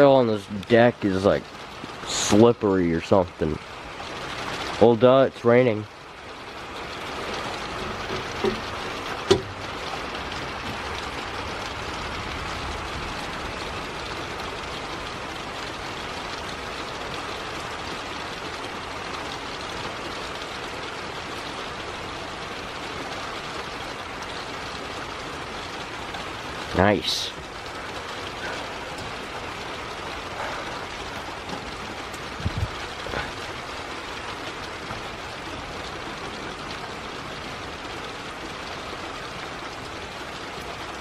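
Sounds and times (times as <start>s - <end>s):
rain falling: 0.0s - 41.0s
short knocks: 7.7s - 9.7s.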